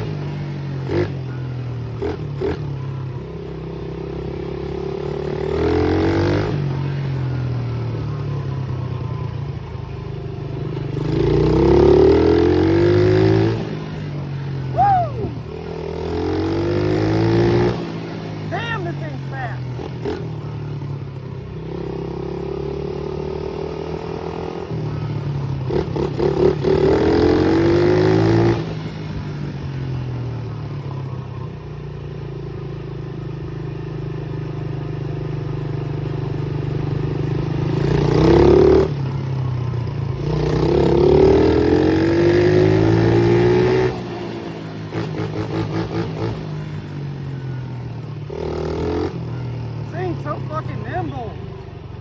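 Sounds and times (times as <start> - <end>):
pit bike engine revving: 0.0 - 8.6, 9.5 - 30.0, 35.2 - 47.6, 48.2 - 52.0.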